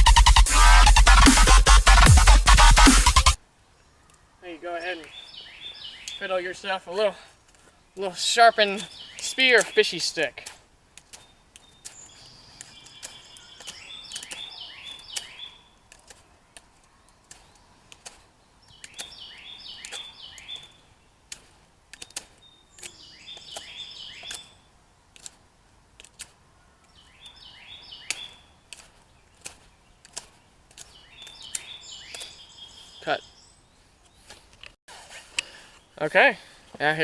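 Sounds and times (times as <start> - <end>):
songbird singing: 3.4 - 25.2, 26.4 - 34.8.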